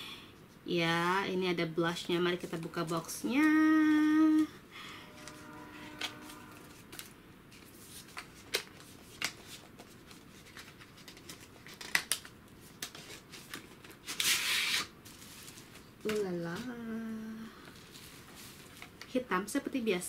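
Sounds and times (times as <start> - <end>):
packaging rustle: 6.0 - 16.2, 17.7 - 19.2.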